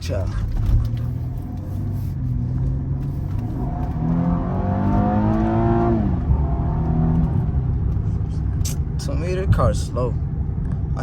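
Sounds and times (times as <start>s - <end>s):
car engine accelerating: 0.1s - 9.5s.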